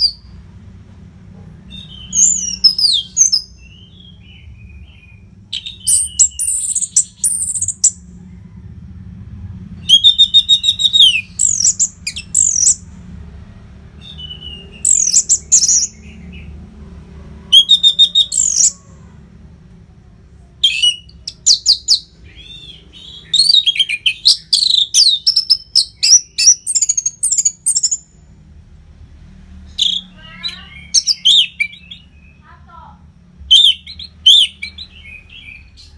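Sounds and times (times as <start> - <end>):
thrush singing whistled trills: 0.0 - 0.3, 1.7 - 8.2, 9.8 - 13.0, 13.9 - 16.5, 17.4 - 19.2, 20.6 - 28.2, 29.7 - 32.5, 33.5 - 35.9.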